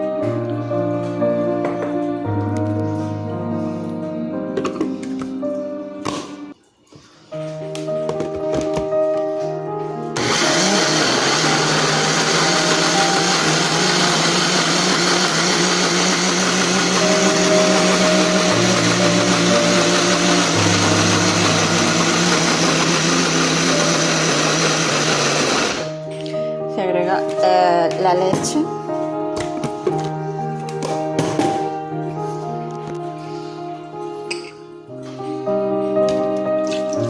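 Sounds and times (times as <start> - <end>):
blender running: 10.2 - 26.0.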